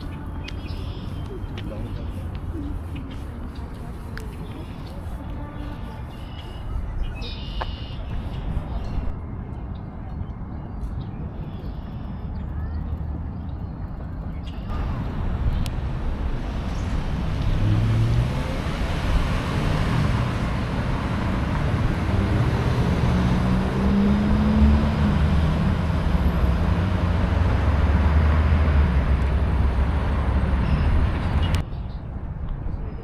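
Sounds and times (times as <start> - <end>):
rush of road noise: 0.0 - 33.0
vehicle engine running: 14.6 - 31.6.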